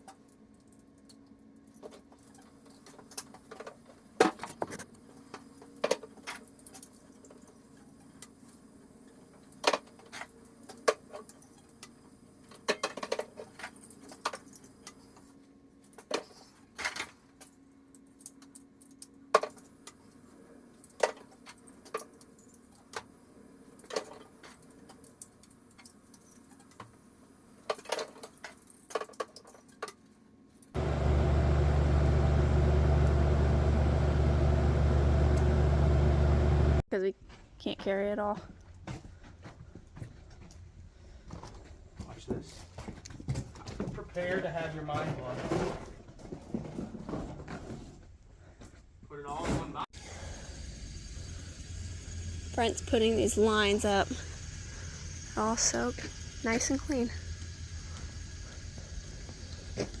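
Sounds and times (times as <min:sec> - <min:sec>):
faint steady hum: 0:50.0 - 0:59.7.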